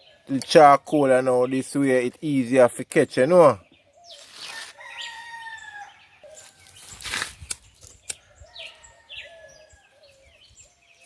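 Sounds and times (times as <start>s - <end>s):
small birds calling: 0.0s - 11.0s
scraping rustle: 4.1s - 4.8s, 6.4s - 8.0s
rooster crowing: 4.5s - 6.0s, 8.4s - 10.0s.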